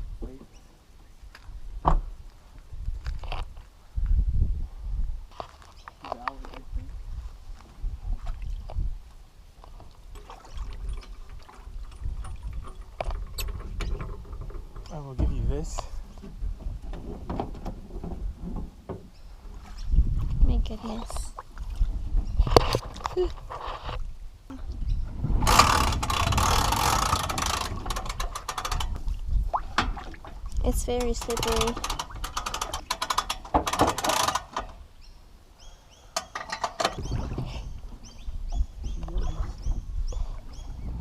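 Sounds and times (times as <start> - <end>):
water sloshing and trickling: 8.0 - 24.1, 25.0 - 35.0, 36.2 - 41.0
winch ratchet clicks: 25.5 - 29.0, 30.9 - 34.8.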